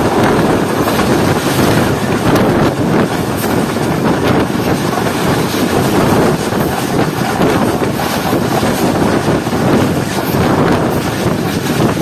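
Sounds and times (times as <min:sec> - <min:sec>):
train coaches running on rails: 0:00.0 - 0:12.0
wind buffeting microphone: 0:00.0 - 0:12.0.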